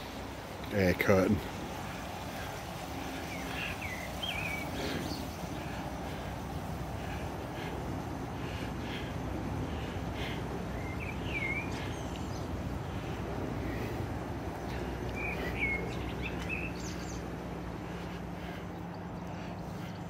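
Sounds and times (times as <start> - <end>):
small birds chirping: 0.0 - 20.0
steady low hum: 0.0 - 20.0
low background rumble: 1.4 - 20.0.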